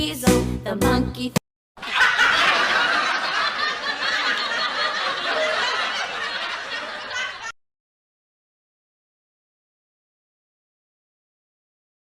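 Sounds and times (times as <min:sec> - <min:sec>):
crowd laughing: 0:01.8 - 0:07.6.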